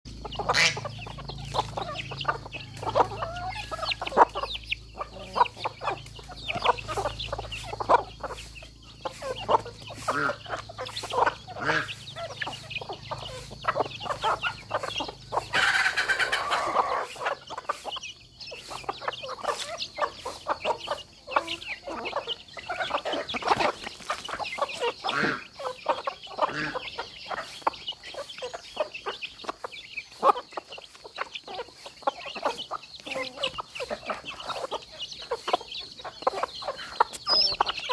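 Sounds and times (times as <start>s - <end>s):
chickens clucking: 0.0s - 37.9s.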